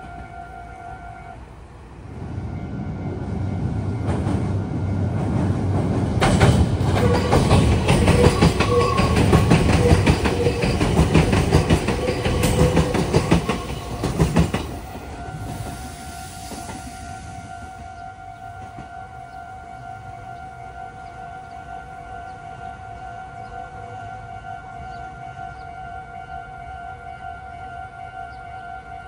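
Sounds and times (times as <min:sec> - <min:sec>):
train wheels clacking over points: 0:04.0 - 0:17.3.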